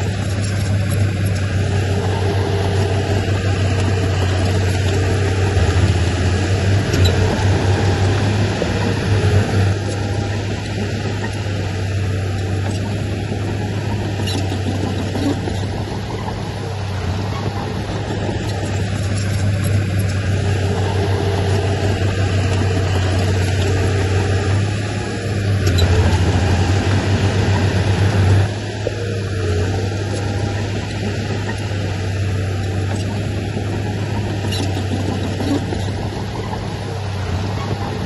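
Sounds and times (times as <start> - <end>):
heavy diesel engine droning: 0.0 - 38.0.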